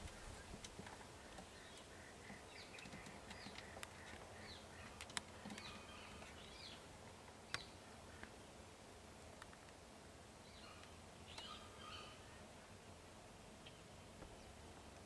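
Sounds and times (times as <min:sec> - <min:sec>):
outdoor background noise: 0:00.0 - 0:15.0
faint bird calls: 0:00.1 - 0:08.4, 0:10.4 - 0:12.8.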